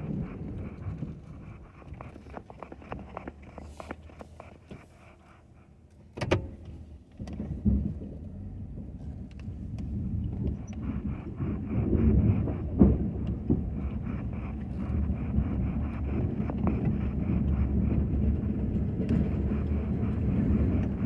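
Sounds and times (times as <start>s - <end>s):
pickup truck engine running: 6.8s - 21.0s.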